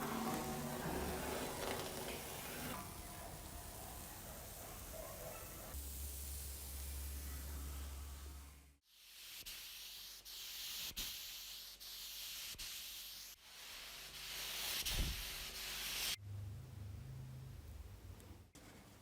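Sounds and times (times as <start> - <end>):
hand sanding strokes: 8.9 - 16.2.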